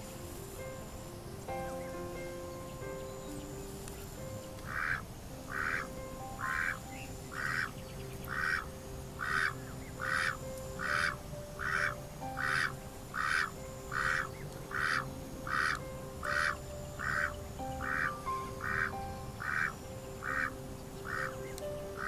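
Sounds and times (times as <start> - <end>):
duck quacking: 4.7 - 6.8, 8.3 - 21.4.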